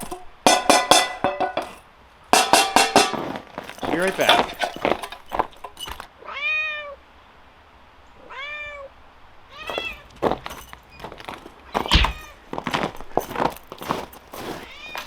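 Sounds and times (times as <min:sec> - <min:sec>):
light knocks and rustles: 0:02.4 - 0:06.1, 0:09.7 - 0:15.0
cat meowing: 0:06.2 - 0:07.0, 0:08.2 - 0:10.1, 0:14.6 - 0:15.0.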